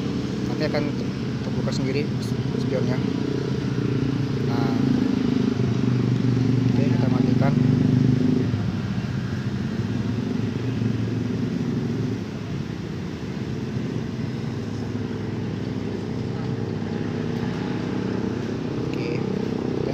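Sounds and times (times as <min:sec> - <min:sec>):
car engine idling: 0:08.4 - 0:19.9.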